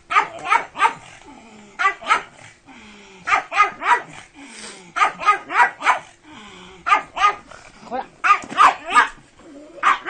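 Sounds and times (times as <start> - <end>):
dog barking: 0.1 - 1.1, 1.8 - 2.4, 3.3 - 4.2, 5.0 - 6.1, 6.9 - 7.4, 8.2 - 9.2, 9.8 - 10.0.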